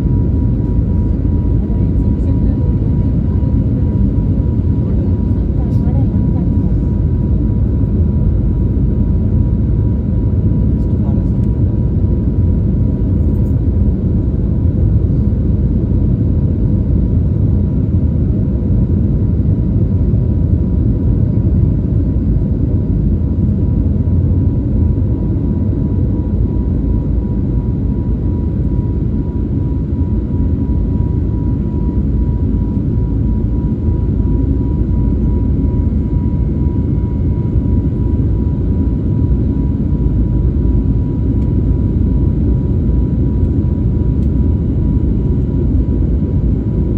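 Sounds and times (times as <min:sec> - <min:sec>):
jet engines rumbling: 0:00.0 - 0:12.8
jet engine whine: 0:00.0 - 0:46.9.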